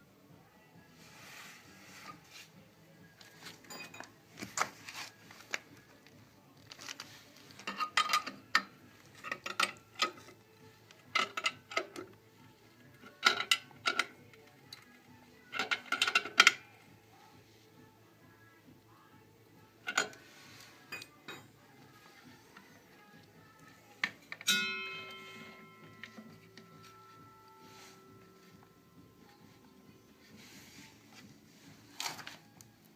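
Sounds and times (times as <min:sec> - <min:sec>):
metal objects clinking: 0:03.4 - 0:04.2, 0:07.6 - 0:10.4, 0:24.0 - 0:28.0.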